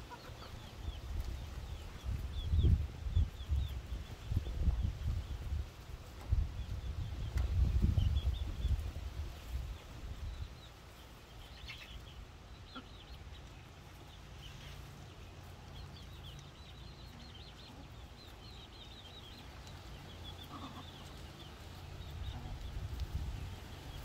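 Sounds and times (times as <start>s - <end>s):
faint bird chirping: 6.3s - 24.0s.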